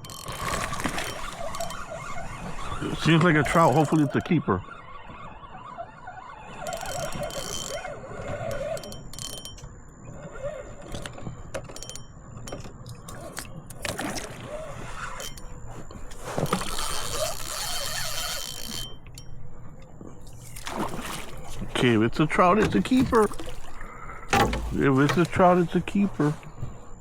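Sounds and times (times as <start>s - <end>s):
fishing rod and reel clicks: 0.0s - 2.8s, 6.5s - 20.6s.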